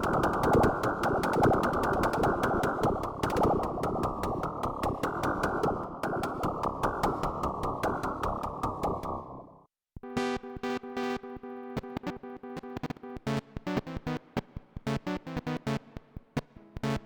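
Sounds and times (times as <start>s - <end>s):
sharp clicking ticks: 0.0s - 9.3s.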